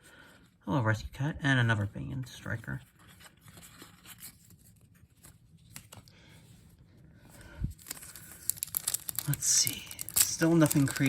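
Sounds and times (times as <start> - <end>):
trading cards rustling and clicking: 2.8 - 6.1, 7.7 - 11.0.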